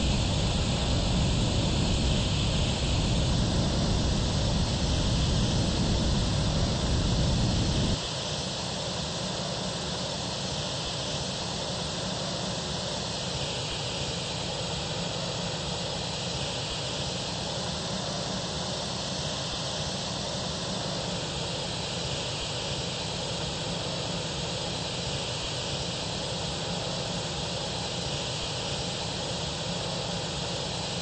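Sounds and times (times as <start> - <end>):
airplane engines rushing: 0.0 - 8.1.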